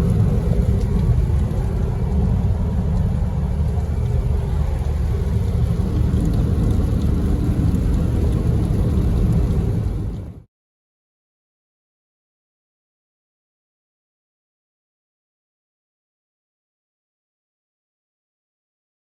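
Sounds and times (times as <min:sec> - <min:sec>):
car engine and road rumble: 0:00.0 - 0:10.4
rain ticking: 0:00.0 - 0:10.5.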